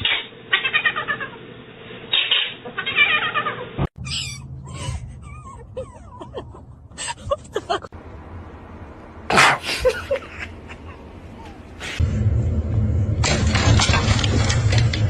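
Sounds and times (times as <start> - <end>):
cat mewing: 0.0 - 1.4, 2.1 - 6.2
short squeaks: 4.0 - 5.4.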